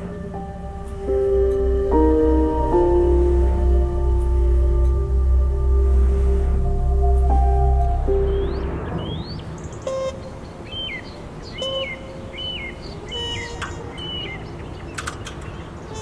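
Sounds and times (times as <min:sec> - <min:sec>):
bird chirping: 0:07.1 - 0:16.0.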